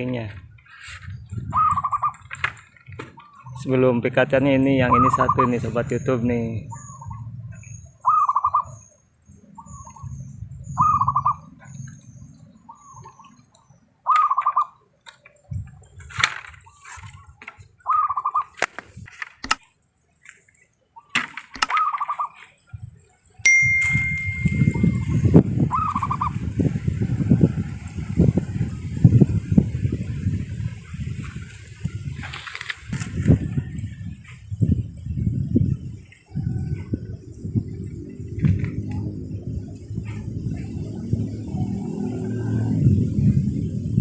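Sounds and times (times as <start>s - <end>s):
dove cooing: 1.4s - 2.4s, 8.0s - 8.8s, 10.8s - 11.8s, 14.0s - 14.8s, 16.6s - 18.6s, 24.7s - 26.4s
sharp clicks: 18.6s - 19.7s.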